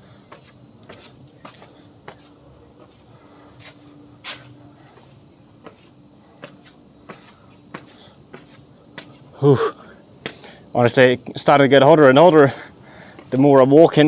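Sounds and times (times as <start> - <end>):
footsteps walking: 0.0 - 9.4
faint steady hum: 0.0 - 14.0.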